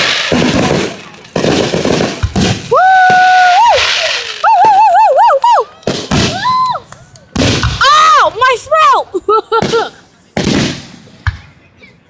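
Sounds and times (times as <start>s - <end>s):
fireworks banging: 0.0s - 11.7s
person whooping: 2.7s - 5.7s, 6.3s - 6.9s.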